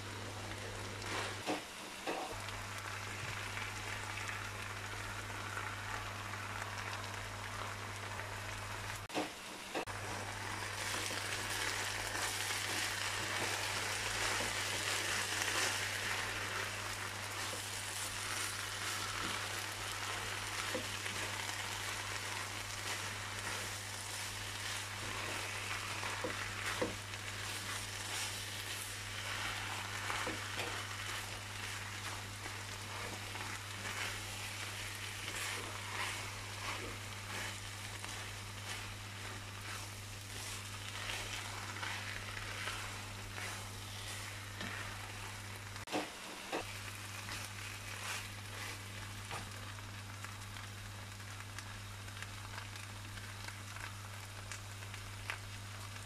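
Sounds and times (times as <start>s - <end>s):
steady low hum: 0.0s - 55.1s
food sizzling in a frying pan: 0.0s - 56.0s
spatula scraping a pan: 10.8s - 45.9s.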